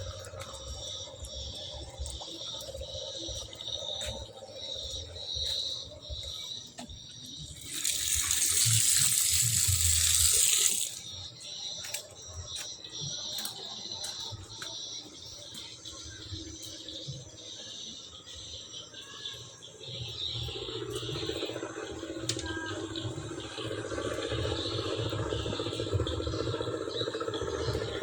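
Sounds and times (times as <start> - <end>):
water drips and splashes: 7.4 - 11.2
rushing hiss of water: 7.6 - 11.0.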